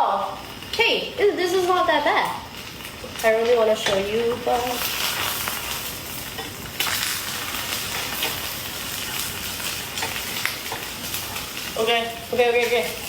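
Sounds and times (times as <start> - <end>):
food sizzling in frying pan: 0.0 - 13.0
spatula scraping and clicking: 3.4 - 11.7.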